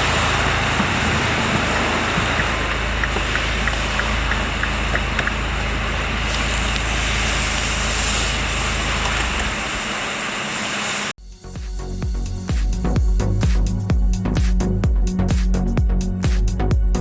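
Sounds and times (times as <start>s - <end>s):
car engine running: 0.0s - 10.0s, 11.2s - 17.0s.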